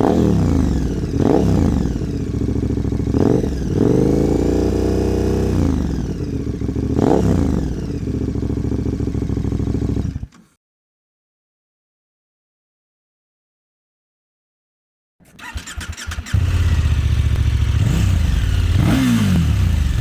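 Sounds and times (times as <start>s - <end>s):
motorcycle engine revving: 0.0s - 10.4s, 15.4s - 20.0s.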